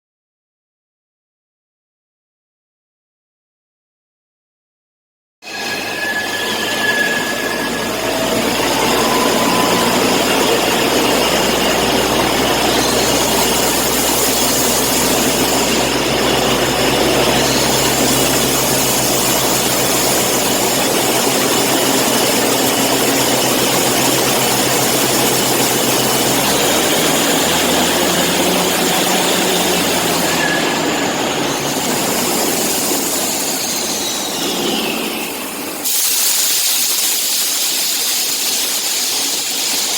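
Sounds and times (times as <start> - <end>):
drilling rig engine drone: 5.4 - 35.8
machinery hissing: 5.5 - 39.9.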